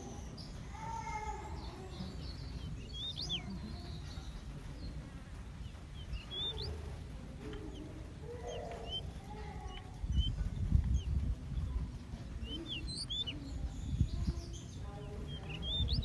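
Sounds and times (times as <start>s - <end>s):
small birds chirping: 0.0s - 16.0s
steady low rumble: 0.0s - 16.0s.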